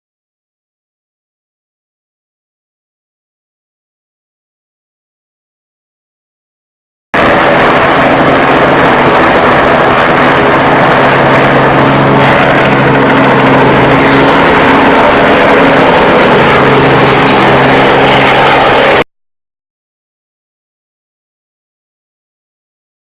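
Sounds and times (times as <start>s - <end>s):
dense rush of noise: 7.2s - 19.0s
aircraft engine droning: 7.2s - 19.1s.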